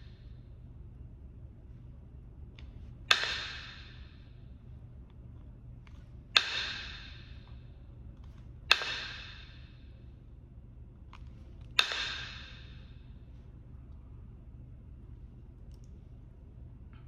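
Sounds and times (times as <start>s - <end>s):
stone struck with ringing blows: 6.4s - 7.3s, 8.7s - 9.6s.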